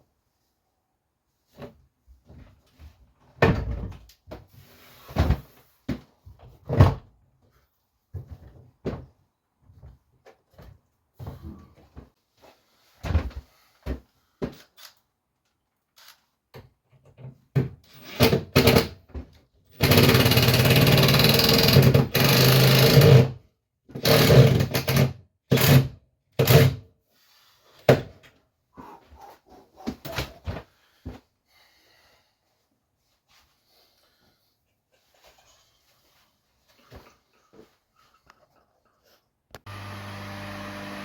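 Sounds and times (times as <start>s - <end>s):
power tool running: 39.7s - 41.0s.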